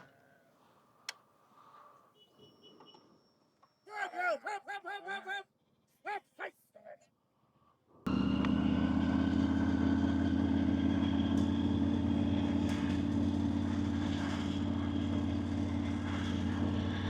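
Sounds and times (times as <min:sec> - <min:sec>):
motorcycle engine running: 0:08.1 - 0:17.0
wind and road noise: 0:08.1 - 0:17.0.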